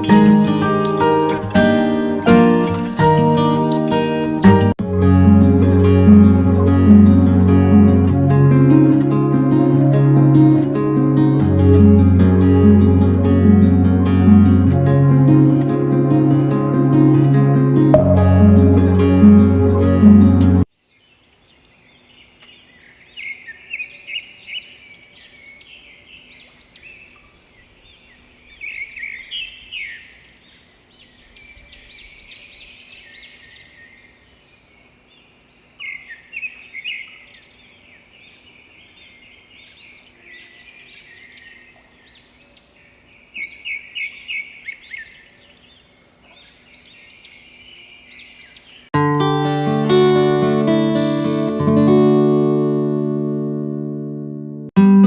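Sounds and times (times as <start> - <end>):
guitar music: 0.0 - 20.6, 49.0 - 55.0
small birds chirping: 20.8 - 49.0.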